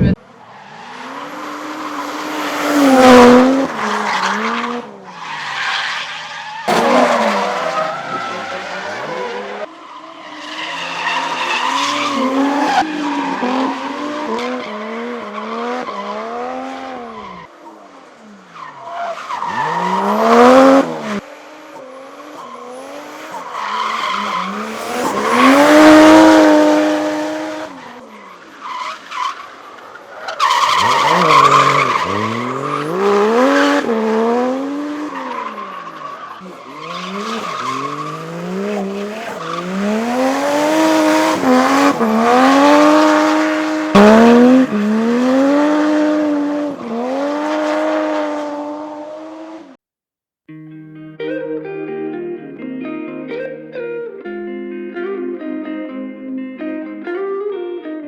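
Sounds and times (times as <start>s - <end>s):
car engine revving: 0.0s - 9.7s, 10.6s - 49.6s
tyres skidding and squealing: 0.0s - 49.6s.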